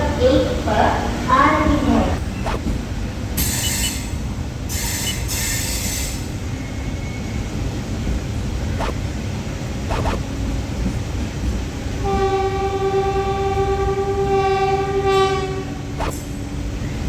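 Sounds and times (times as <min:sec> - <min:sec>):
train rumble: 0:00.0 - 0:17.0
sharp click: 0:09.9 - 0:10.2
train horn: 0:12.0 - 0:16.0.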